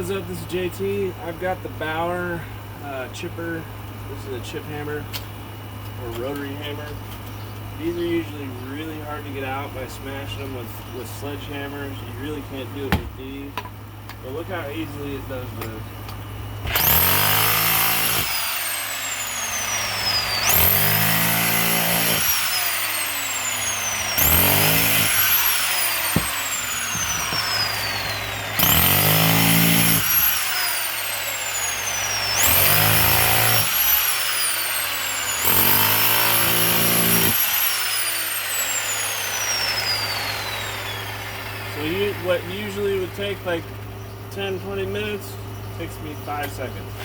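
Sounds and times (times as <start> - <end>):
rotary hammer chipping bricks: 16.7 - 40.0.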